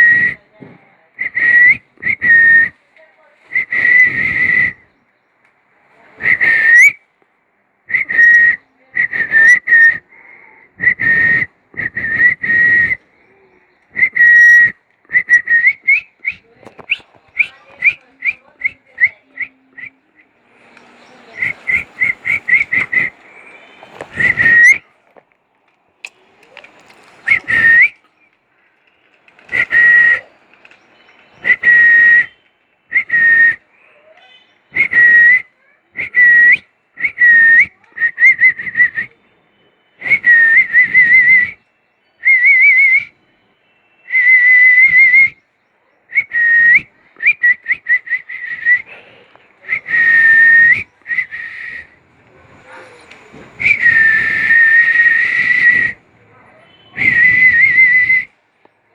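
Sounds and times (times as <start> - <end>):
high whistled notes: 10.8 - 25.2, 26.0 - 33.7, 46.2 - 58.4.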